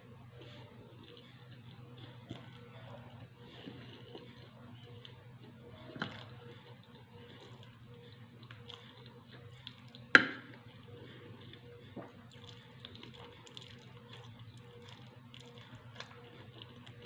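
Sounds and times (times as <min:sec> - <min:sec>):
wet chewing: 0:00.4 - 0:17.0.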